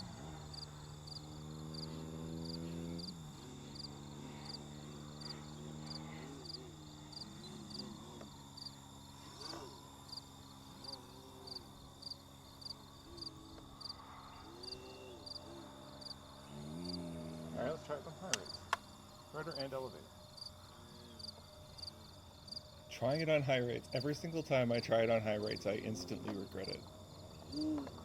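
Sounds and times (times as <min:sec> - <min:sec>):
aircraft engine droning: 0:00.0 - 0:28.0
crickets chirping: 0:00.0 - 0:28.0.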